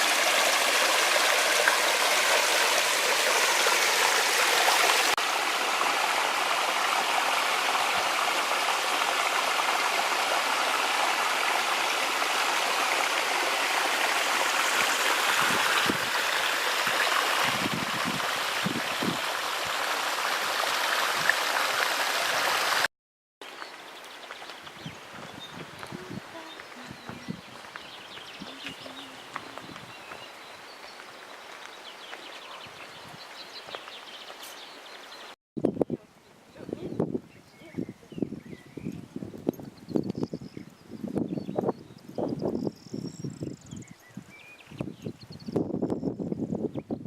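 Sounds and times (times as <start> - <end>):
rushing water of stream: 0.0 - 35.4.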